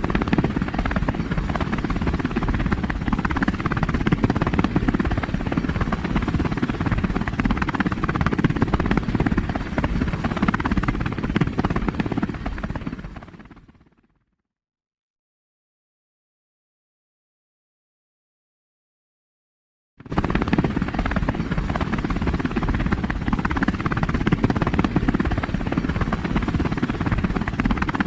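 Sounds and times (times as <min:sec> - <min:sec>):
helicopter rotor chopping: 0:00.0 - 0:13.8, 0:20.0 - 0:28.0.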